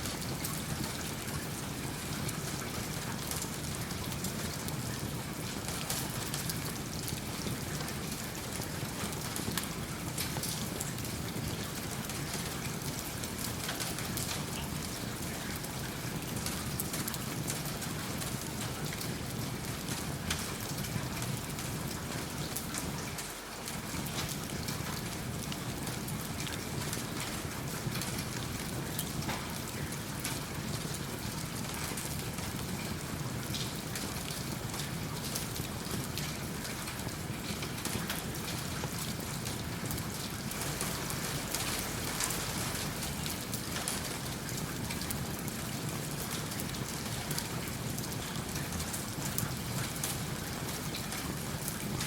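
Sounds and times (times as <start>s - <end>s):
steady rain: 0.0s - 52.0s
wood fire crackling: 23.7s - 52.0s.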